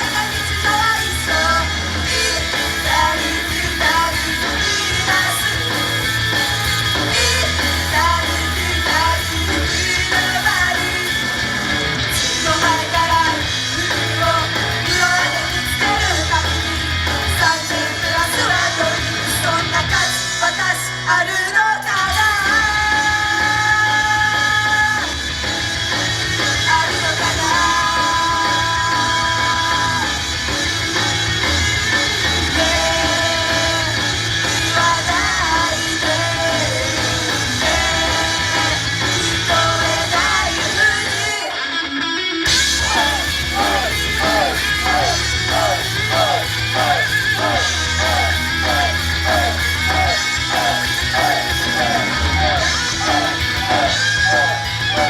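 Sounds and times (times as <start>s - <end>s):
person singing: 0.0s - 11.4s, 32.2s - 41.7s, 42.7s - 55.0s
live pop song through pa: 0.0s - 55.0s.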